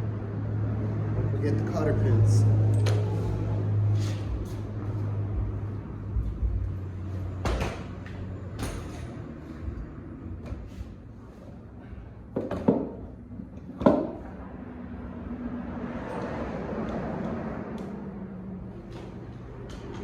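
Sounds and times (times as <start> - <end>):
low hum: 2.0 - 12.1
clicks and knocks of bike repair: 2.7 - 3.2, 7.4 - 9.3, 12.3 - 14.3, 18.9 - 20.0.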